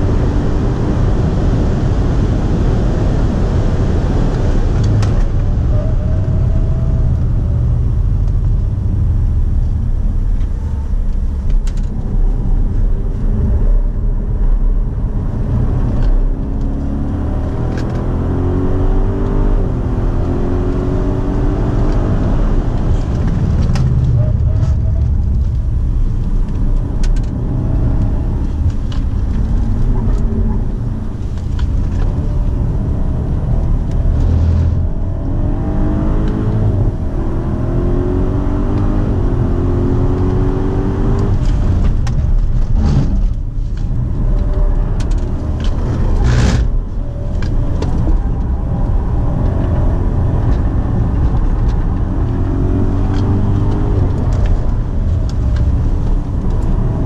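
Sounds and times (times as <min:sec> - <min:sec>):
car engine accelerating: 0:00.0 - 0:57.0
road and wind rumble: 0:00.0 - 0:57.0.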